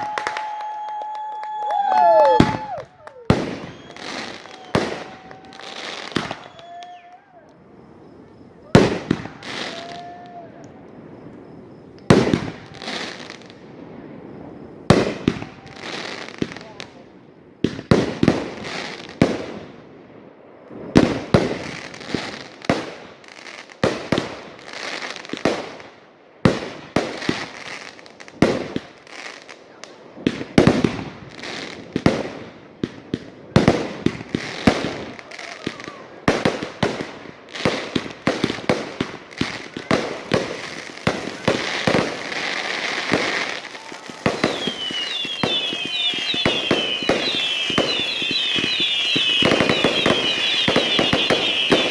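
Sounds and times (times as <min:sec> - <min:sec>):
fireworks bangs and pops: 0:00.0 - 0:17.0, 0:17.6 - 0:51.9
fireworks whistling: 0:00.0 - 0:29.6, 0:30.2 - 0:51.9.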